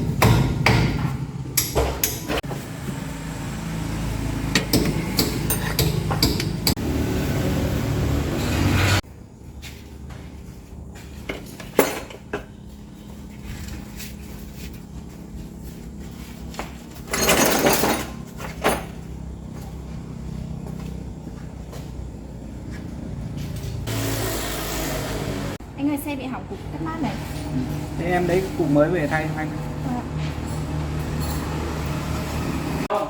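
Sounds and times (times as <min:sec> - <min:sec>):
metal clanks and knocks: 0:04.5 - 0:06.8, 0:11.2 - 0:12.6.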